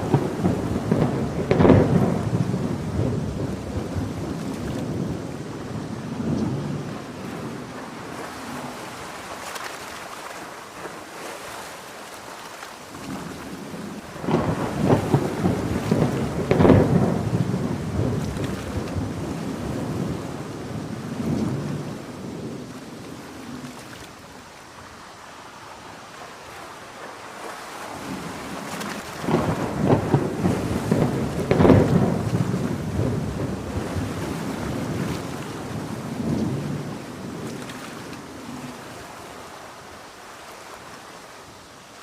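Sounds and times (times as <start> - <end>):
rolling thunder: 0.0 - 8.8, 13.2 - 23.6, 28.0 - 39.0
heavy rain hissing: 0.0 - 9.4, 12.9 - 42.0.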